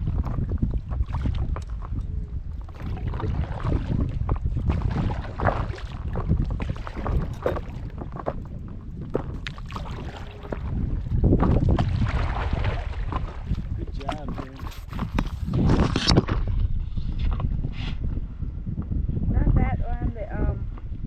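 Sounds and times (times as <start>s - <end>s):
paddle splashing in water: 0.0s - 2.0s, 2.6s - 17.2s
wind buffeting microphone: 0.0s - 21.0s.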